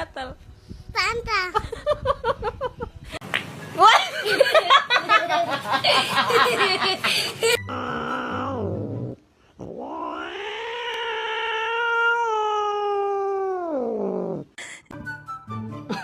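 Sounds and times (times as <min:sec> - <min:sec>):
cat yowling: 0:07.6 - 0:08.8, 0:09.6 - 0:14.4.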